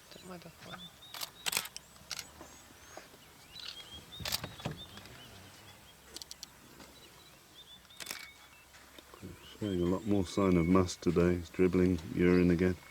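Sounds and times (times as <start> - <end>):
birds chirping: 0.0 - 12.9
sharp clicks: 1.1 - 2.3, 3.6 - 5.2, 7.9 - 8.4.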